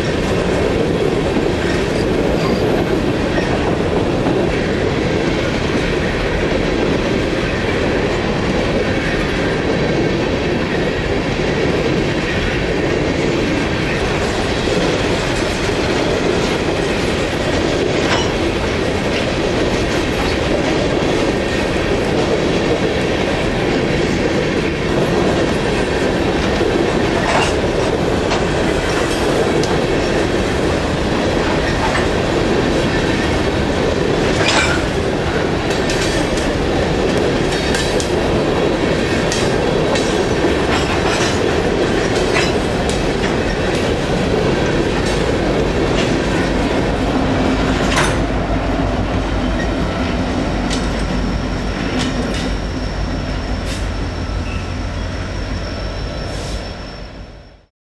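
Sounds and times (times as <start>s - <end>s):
wheels clattering on track: 0.0s - 52.8s
thin high whine: 51.2s - 57.7s.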